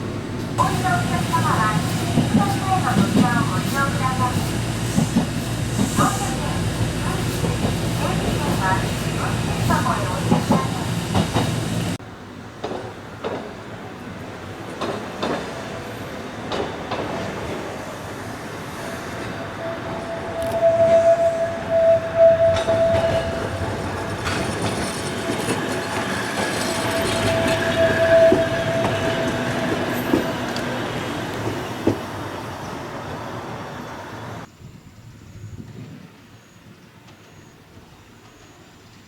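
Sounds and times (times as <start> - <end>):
electric train rumbling on track: 0.0 - 39.0
high steady tone: 19.5 - 30.6.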